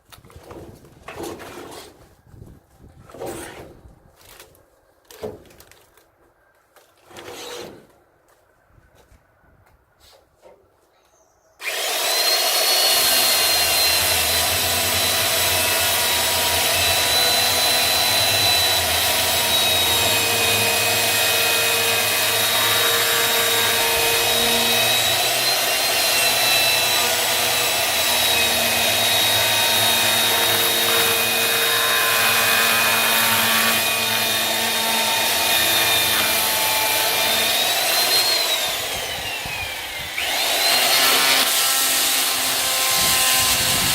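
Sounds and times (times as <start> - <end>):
electric saw cutting wood: 11.6 - 43.9.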